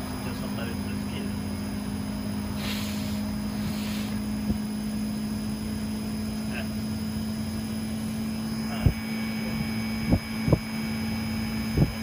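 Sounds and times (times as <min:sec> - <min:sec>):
air conditioner humming: 0:00.0 - 0:12.0
short hiss: 0:02.6 - 0:04.2.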